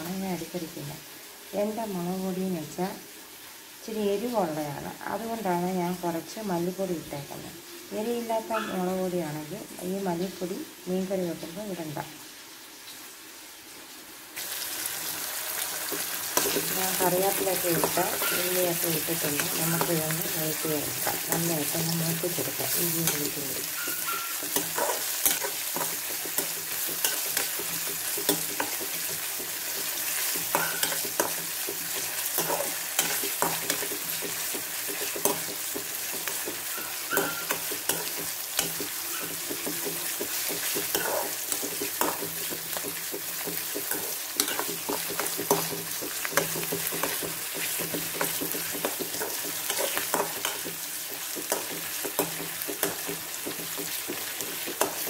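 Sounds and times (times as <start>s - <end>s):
food sizzling in hot oil: 0.0s - 55.0s
spatula tapping metal pan: 22.3s - 55.0s.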